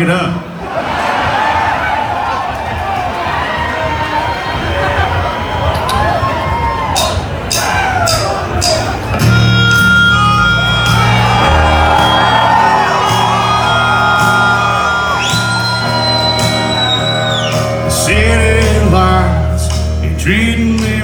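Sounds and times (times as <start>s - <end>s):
electric guitars: 7.5s - 21.0s
high held guitar lead note: 8.6s - 20.4s
bass line: 8.6s - 21.0s.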